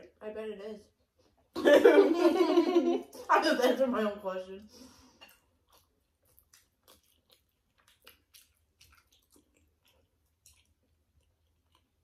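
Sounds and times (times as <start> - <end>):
people chewing: 4.7 - 12.0
wet mouth clicks: 5.3 - 12.0.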